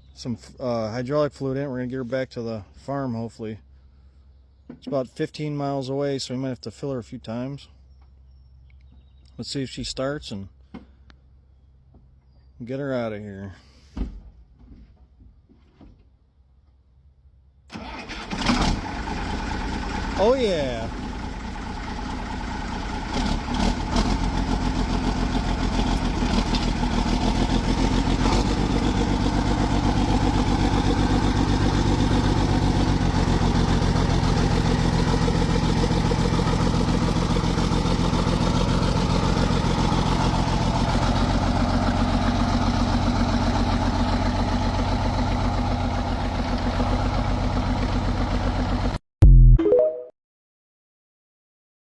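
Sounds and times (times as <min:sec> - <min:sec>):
tractor diesel engine running: 0:17.7 - 0:49.0.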